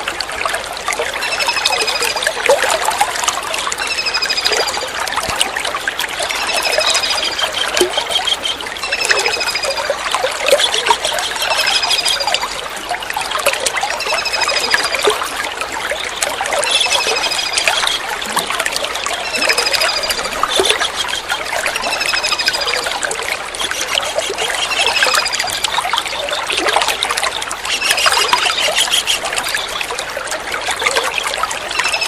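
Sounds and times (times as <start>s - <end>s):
trickling water: 0.0s - 32.0s
kingfisher trilling calls: 6.3s - 9.9s, 10.5s - 12.5s, 16.6s - 18.3s, 19.2s - 22.9s, 23.5s - 26.4s, 27.6s - 29.8s.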